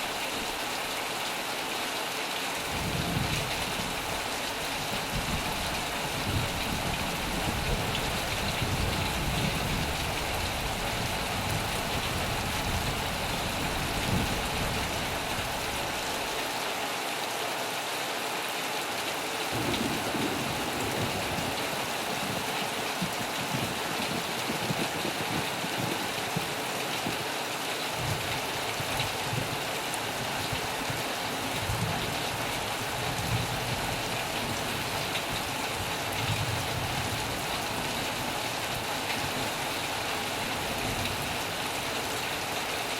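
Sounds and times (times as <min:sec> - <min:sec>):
rain drumming on a metal roof: 0:00.0 - 0:42.9.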